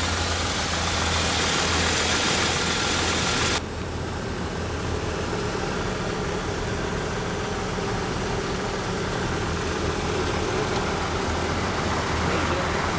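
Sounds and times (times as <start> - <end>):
pickup truck engine idling: 0.0 - 12.9.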